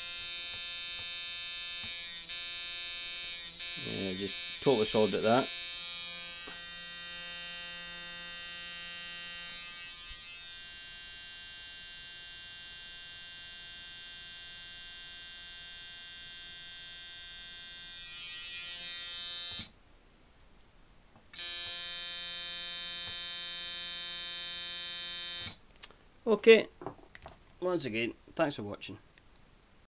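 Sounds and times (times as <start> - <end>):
tattoo machine buzzing: 0.0 - 19.7, 21.4 - 25.6.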